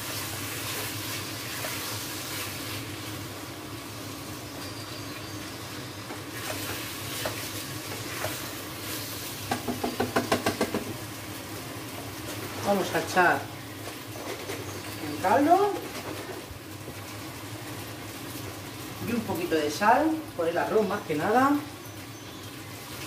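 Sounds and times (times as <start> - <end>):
food sizzling in a pot: 0.0 - 23.0
spoon knocking against pot: 9.5 - 10.9.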